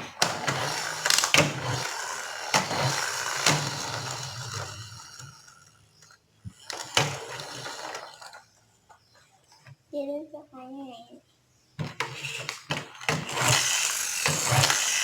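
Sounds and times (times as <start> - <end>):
toy clicks and knocks: 0.0 - 8.4, 11.8 - 15.0
toy flywheel gears whirring: 0.0 - 8.6, 11.8 - 15.0.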